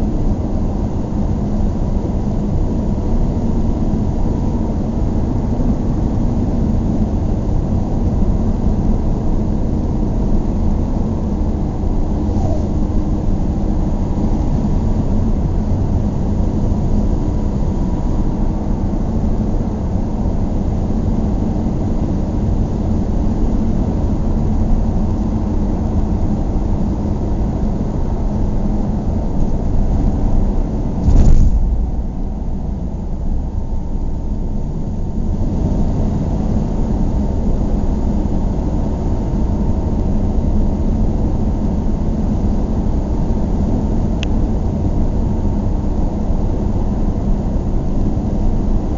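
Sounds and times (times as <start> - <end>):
road vehicle rumbling: 0.0 - 48.9
sharp knock: 31.0 - 32.0.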